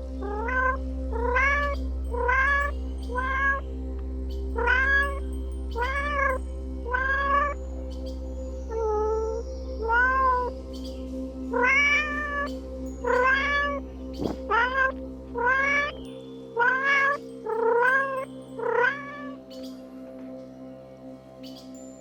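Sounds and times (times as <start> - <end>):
background music: 0.0 - 22.0
cat meowing: 0.2 - 3.6, 4.6 - 5.2, 5.8 - 7.6, 9.8 - 10.5, 11.6 - 15.9, 16.6 - 19.4.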